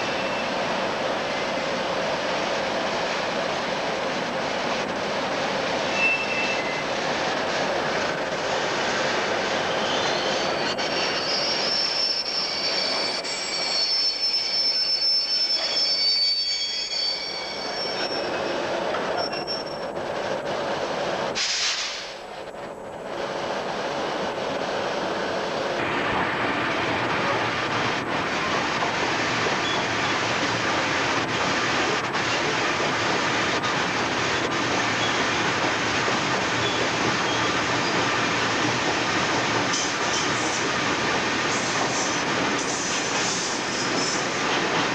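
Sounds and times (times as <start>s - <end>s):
train wheels squealing: 0.0s - 0.7s, 5.8s - 7.0s, 9.6s - 20.0s, 29.6s - 30.3s, 34.4s - 35.3s, 36.5s - 38.6s, 41.5s - 44.5s
train rumbling: 0.0s - 44.9s.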